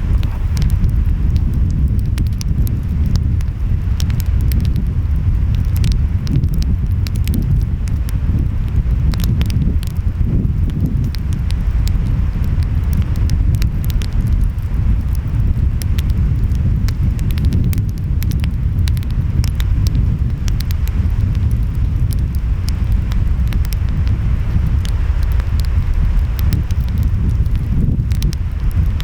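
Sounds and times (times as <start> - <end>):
ocean waves rumbling: 0.0 - 16.5
wind: 0.0 - 29.0
wood fire crackling and popping: 0.0 - 29.0.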